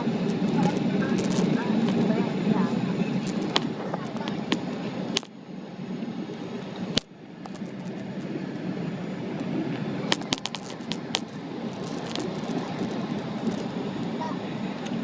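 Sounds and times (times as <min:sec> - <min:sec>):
airliner cabin engine rumble: 0:00.0 - 0:15.0
clicks and rattles: 0:00.2 - 0:02.3, 0:03.2 - 0:05.3, 0:07.0 - 0:08.3, 0:10.1 - 0:13.8.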